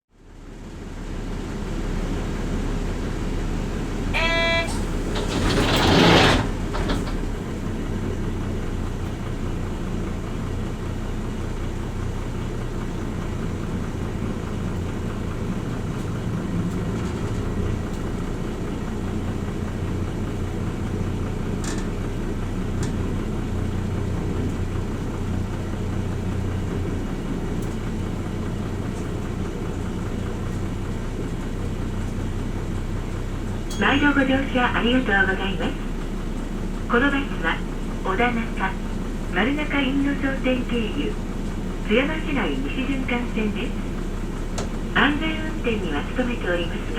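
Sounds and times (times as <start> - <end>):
bus engine running: 0.1 - 46.9
short electronic tone: 4.1 - 5.6.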